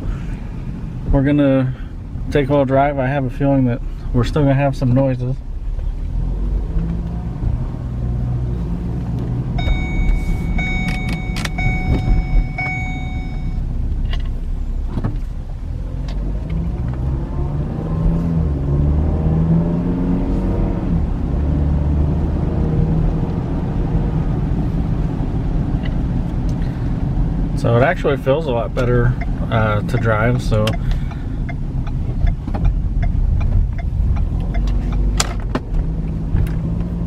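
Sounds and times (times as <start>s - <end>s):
car engine and road rumble: 0.0s - 37.0s
clicks with ringing tone: 9.6s - 13.6s.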